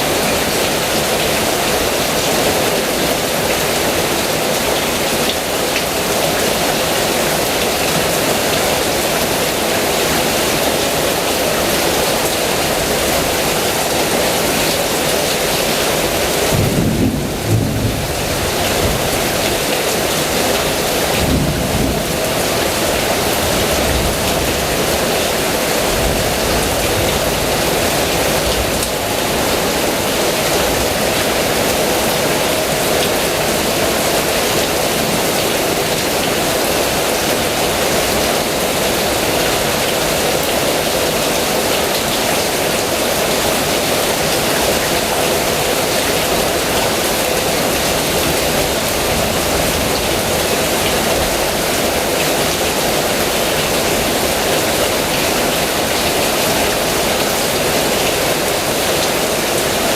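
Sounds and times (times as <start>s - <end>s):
heavy rain falling: 0.0s - 59.9s
low rumble of thunder: 16.5s - 19.4s, 21.2s - 22.2s.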